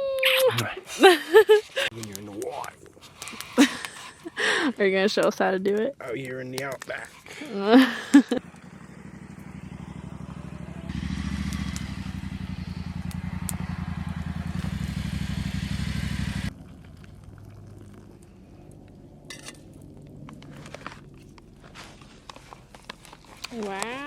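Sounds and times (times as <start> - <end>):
scattered clicks and crackles: 1.7 - 4.4, 5.0 - 7.4, 11.4 - 12.2, 16.5 - 24.0
motorcycle engine running: 7.1 - 17.4.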